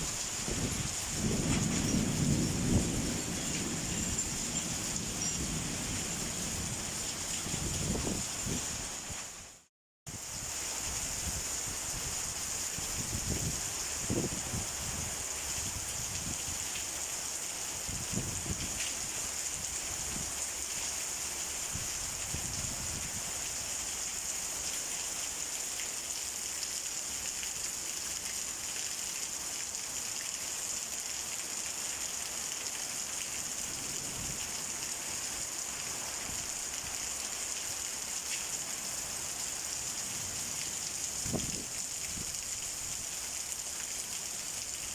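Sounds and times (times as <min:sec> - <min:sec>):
steady pouring rain: 0:00.0 - 0:44.9.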